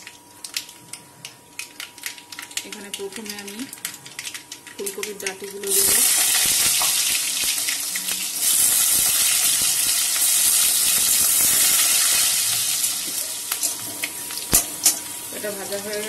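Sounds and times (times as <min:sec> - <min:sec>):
vegetables sizzling in hot oil: 0:04.6 - 0:16.0.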